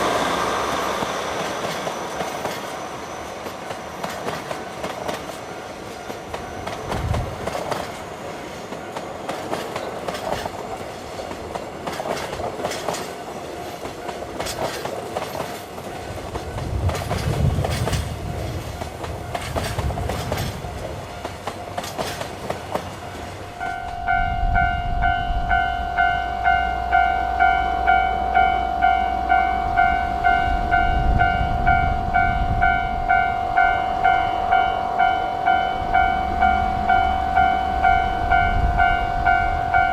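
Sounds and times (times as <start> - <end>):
train wheels clicking over rail joints: 0.0 - 24.0
level-crossing alarm bell ringing: 23.0 - 39.9.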